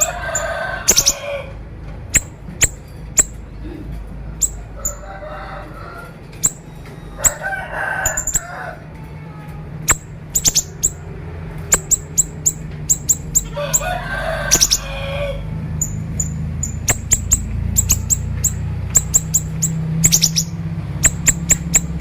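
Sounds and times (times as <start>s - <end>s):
harsh bird chattering: 0.0s - 5.1s, 6.3s - 8.6s, 9.8s - 22.0s
steady low hum: 0.0s - 22.0s
songbird snapping notes: 11.6s - 12.3s, 16.8s - 18.2s.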